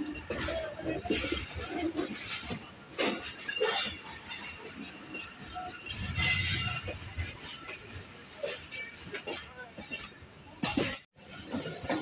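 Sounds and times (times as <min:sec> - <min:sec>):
train coach rattling on rails: 0:00.0 - 0:12.0.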